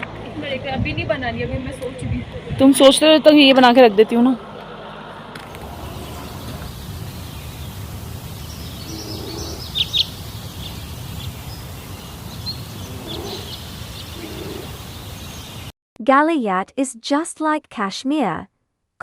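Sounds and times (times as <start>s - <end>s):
steady low rumble: 0.1s - 3.0s, 5.5s - 15.2s
bird chirps: 5.5s - 15.7s.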